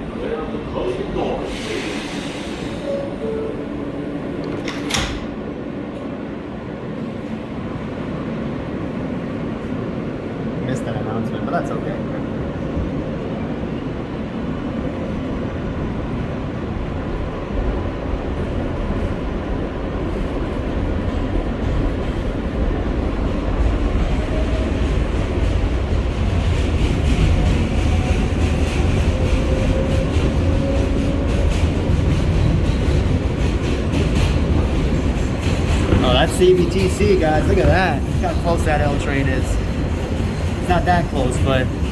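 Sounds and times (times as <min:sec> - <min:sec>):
subway train rumbling: 0:00.0 - 0:41.9
rail clicks: 0:00.5 - 0:06.2, 0:20.2 - 0:41.9.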